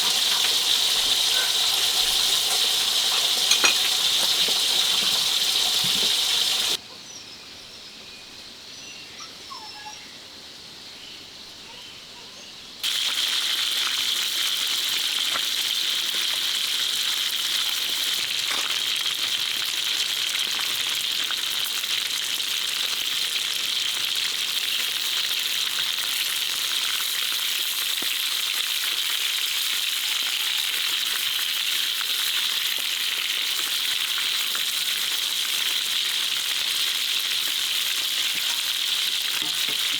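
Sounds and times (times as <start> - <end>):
food sizzling in a hot pan: 0.0 - 6.8, 12.8 - 39.9
forest ambience: 0.0 - 13.4.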